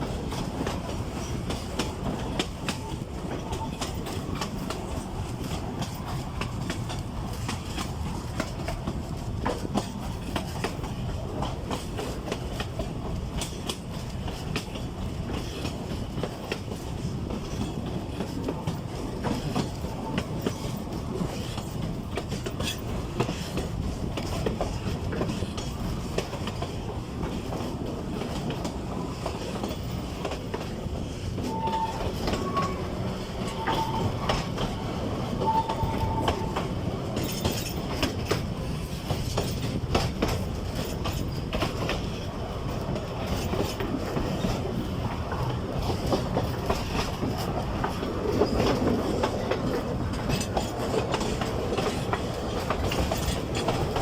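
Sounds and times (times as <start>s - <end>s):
diesel train rumbling: 0.0s - 54.0s
wheels clicking over rail joints: 0.0s - 54.0s
wheel squeals: 31.4s - 34.6s, 35.4s - 36.6s.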